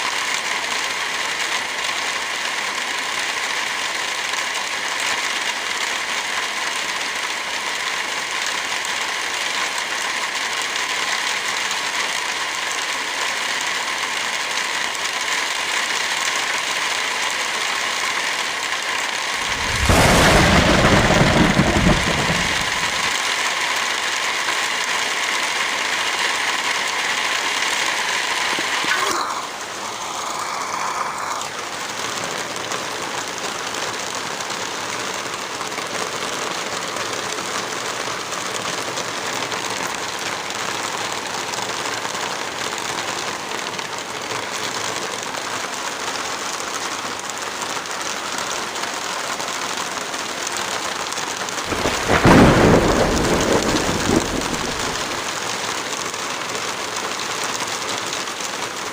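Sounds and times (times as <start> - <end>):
heavy rain falling: 0.0 - 58.9
deep thunderclap rumbling: 19.4 - 23.2, 51.7 - 55.3.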